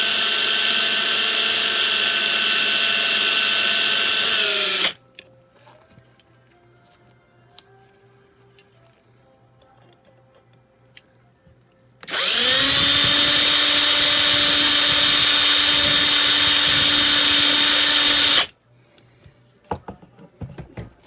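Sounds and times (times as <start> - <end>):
electric drill whining: 0.0 - 5.0, 12.0 - 18.5.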